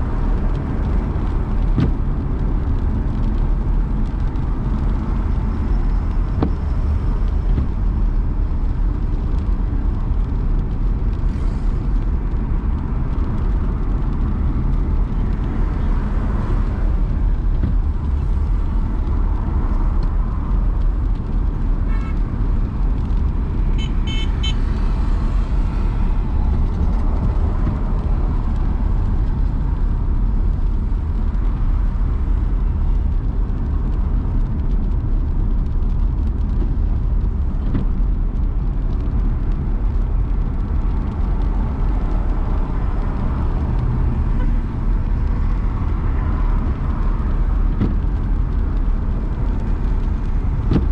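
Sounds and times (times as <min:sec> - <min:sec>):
car engine and road rumble: 0:00.0 - 0:50.9
car horn toots: 0:23.8 - 0:24.6.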